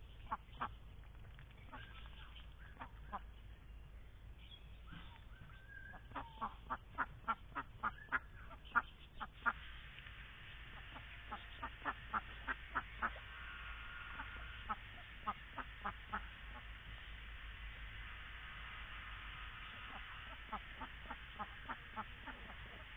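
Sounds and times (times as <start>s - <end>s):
ducks quacking: 1.7s - 3.4s, 5.9s - 9.6s, 10.7s - 16.9s, 19.7s - 22.9s.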